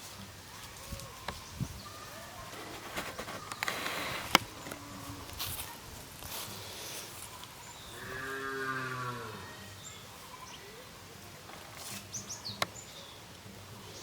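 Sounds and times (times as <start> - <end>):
low farm animal call: 3.4 - 5.4, 7.3 - 11.2.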